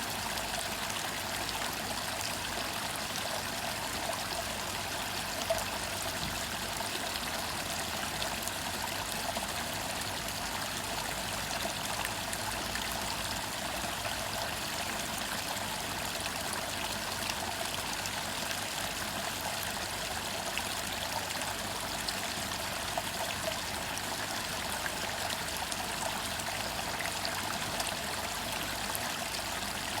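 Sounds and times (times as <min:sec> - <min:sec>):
waterfall splashing into pond: 0:00.0 - 0:30.0.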